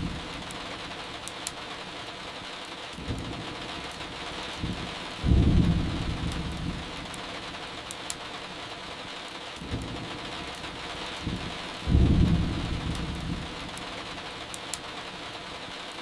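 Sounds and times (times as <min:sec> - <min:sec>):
thunder rumbling: 0:00.0 - 0:01.0, 0:03.0 - 0:07.8, 0:09.6 - 0:14.5
firewood crackling: 0:00.0 - 0:15.4
steady rain: 0:00.0 - 0:16.0.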